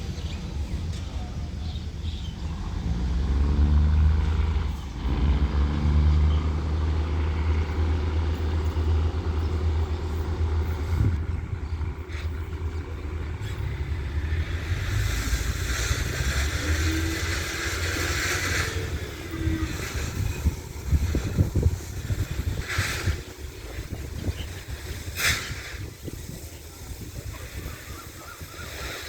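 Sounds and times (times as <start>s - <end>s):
diesel train engine rumbling: 0.0s - 29.0s
rushing hiss: 7.6s - 29.0s.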